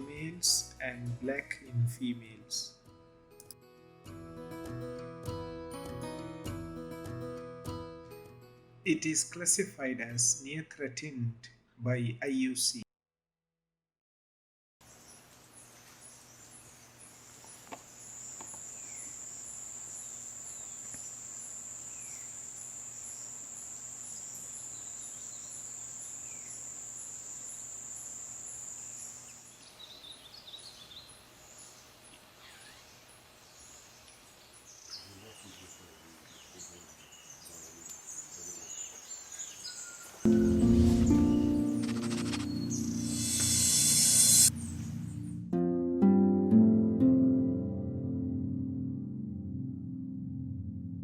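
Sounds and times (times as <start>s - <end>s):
bird chirps: 29.3s - 45.2s
bird calls: 29.6s - 40.3s
insect trilling: 41.8s - 44.5s.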